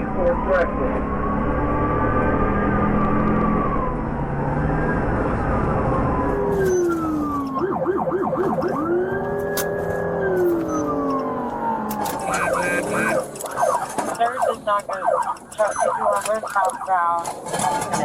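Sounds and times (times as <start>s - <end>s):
police siren wailing and yelping: 2.2s - 17.9s.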